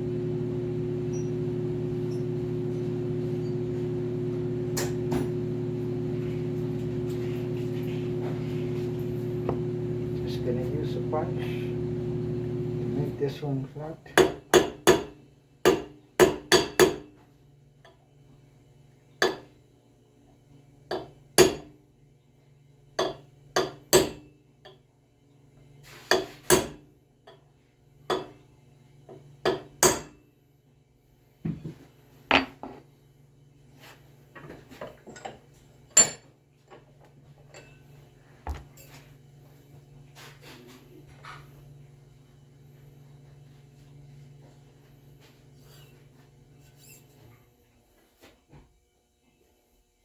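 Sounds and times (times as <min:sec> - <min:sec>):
low steady hum: 0:00.0 - 0:14.4.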